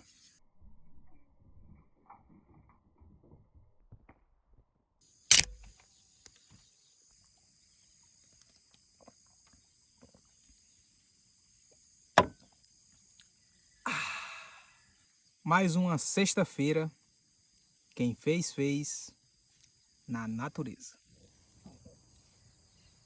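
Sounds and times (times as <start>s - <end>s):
insects buzzing: 5.1s - 23.0s.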